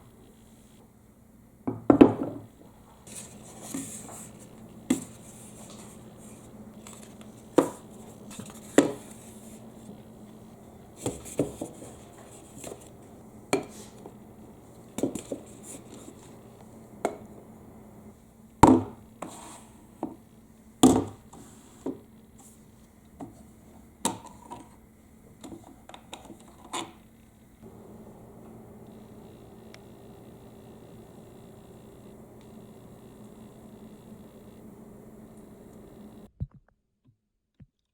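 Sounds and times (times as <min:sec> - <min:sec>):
faint low hum: 0:27.2 - 0:36.3.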